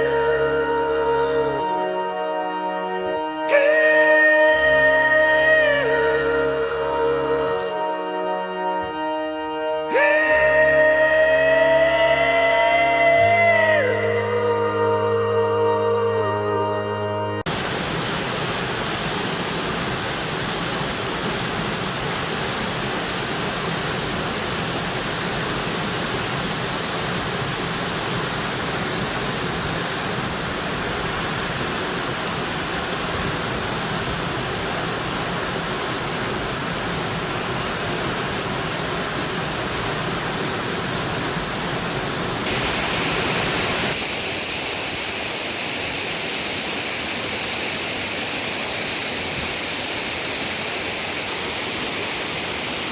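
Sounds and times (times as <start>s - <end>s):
waterfall rushing: 17.5s - 52.9s.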